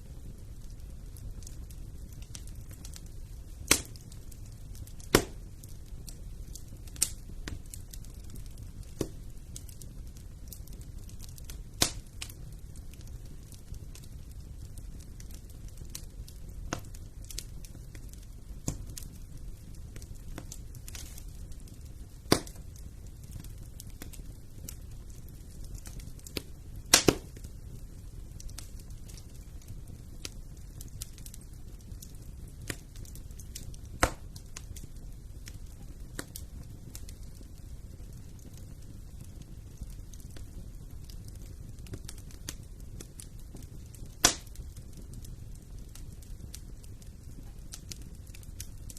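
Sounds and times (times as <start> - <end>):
fire popping: 0.0 - 48.9
wood fire crackling: 0.0 - 48.9.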